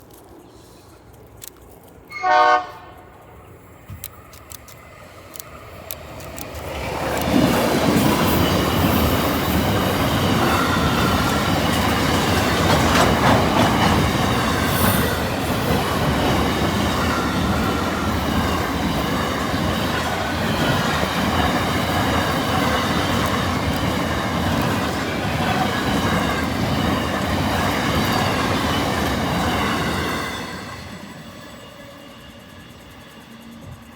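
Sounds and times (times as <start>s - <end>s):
freight train rumbling past: 2.0s - 33.9s
wheels clacking over track: 3.9s - 30.4s.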